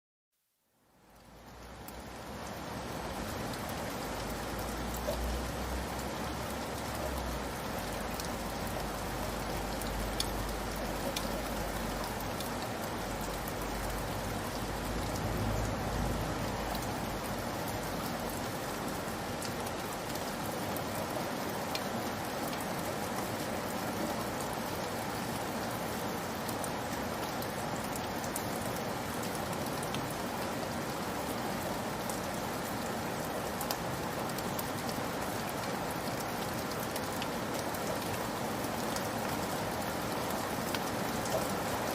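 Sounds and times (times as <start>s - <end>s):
steady rain falling: 0.4s - 41.9s
sharp raindrop ticks: 3.5s - 21.0s, 33.4s - 41.6s.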